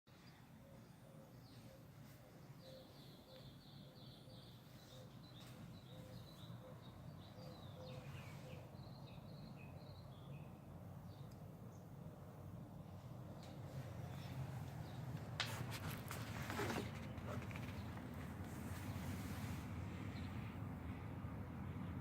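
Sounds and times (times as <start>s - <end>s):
faint bird chirping: 0.1s - 15.2s
quiet background hum: 0.1s - 22.0s.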